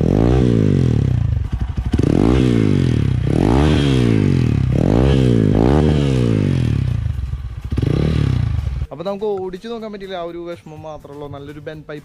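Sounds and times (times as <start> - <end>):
motorcycle engine revving: 0.0 - 8.9.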